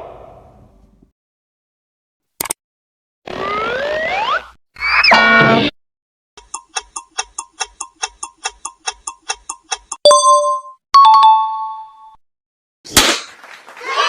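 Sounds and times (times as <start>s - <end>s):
quick clock-like ticking: 6.4s - 10.0s
bell-like dings: 10.0s - 12.2s.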